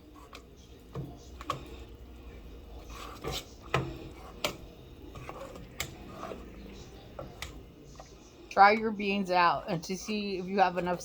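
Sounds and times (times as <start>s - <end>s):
spoon knocking and scraping a pot: 0.0s - 2.0s, 2.7s - 11.0s.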